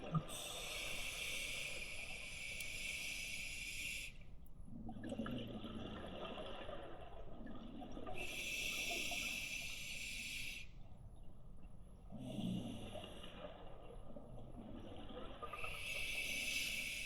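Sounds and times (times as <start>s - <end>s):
exhaled bubbles rumbling: 4.6s - 8.6s, 12.1s - 16.5s.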